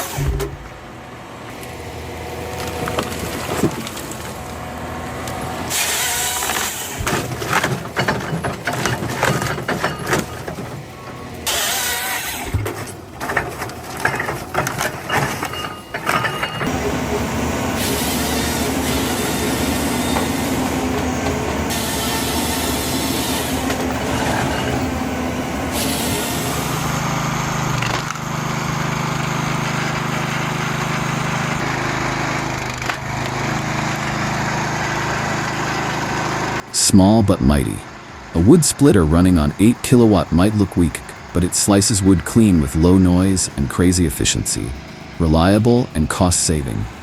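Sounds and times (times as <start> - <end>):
heavy machine engine: 0.0 - 47.0
wood cracking and snapping: 2.4 - 4.4.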